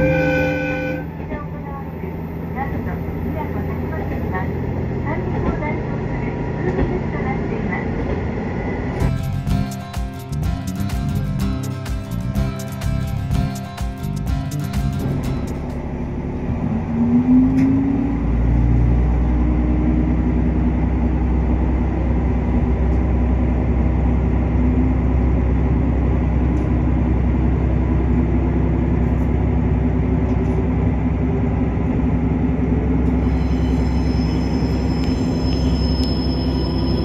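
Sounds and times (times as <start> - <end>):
diesel railcar engine rumble: 0.0 - 37.0
high wheel squeal: 33.1 - 37.0.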